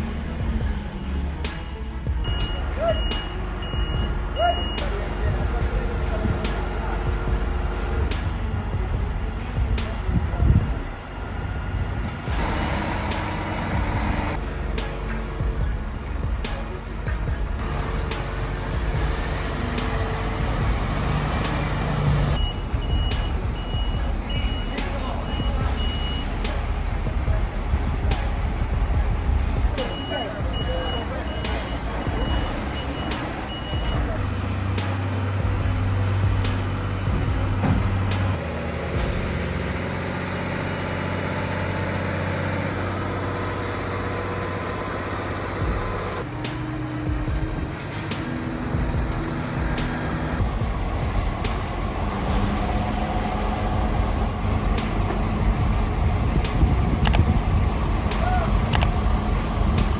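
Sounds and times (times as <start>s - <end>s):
heavy vehicle engine rumbling: 0.0s - 59.9s
reversing alarm beeping: 1.1s - 5.4s, 22.3s - 26.5s, 29.8s - 34.3s.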